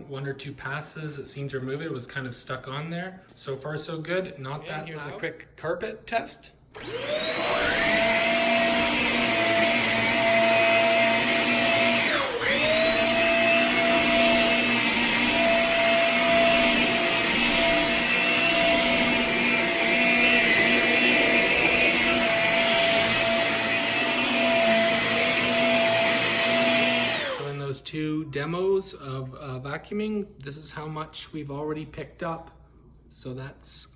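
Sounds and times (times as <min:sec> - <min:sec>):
stick vacuum motor whining: 0:06.7 - 0:27.6.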